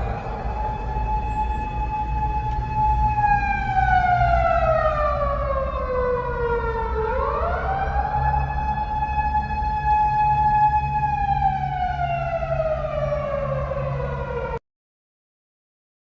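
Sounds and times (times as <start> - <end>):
low rumble: 0.0 - 4.4
buzzy siren-like tone: 0.0 - 5.2.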